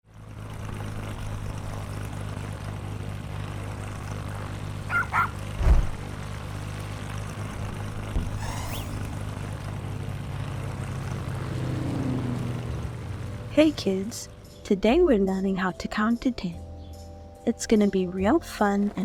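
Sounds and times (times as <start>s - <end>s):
low engine-like hum: 0.1s - 19.0s
short yelps: 4.9s - 5.4s
low thump: 5.6s - 6.0s, 8.1s - 9.1s.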